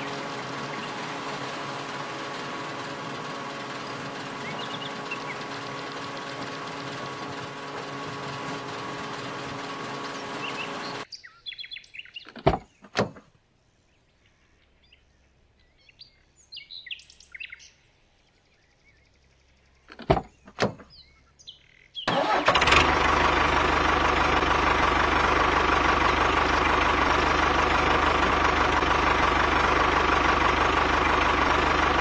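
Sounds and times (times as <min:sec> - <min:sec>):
faint bird chirps: 0:10.4 - 0:12.4, 0:13.6 - 0:22.1.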